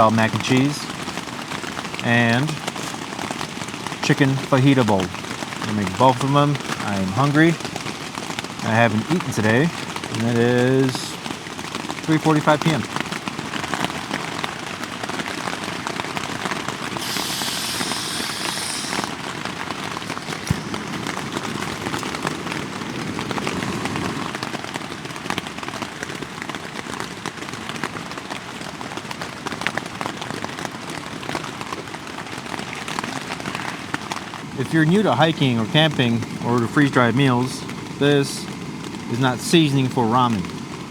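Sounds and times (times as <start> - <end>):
rain pattering: 0.0 - 40.9
brief high hiss: 17.0 - 19.2, 20.0 - 21.4.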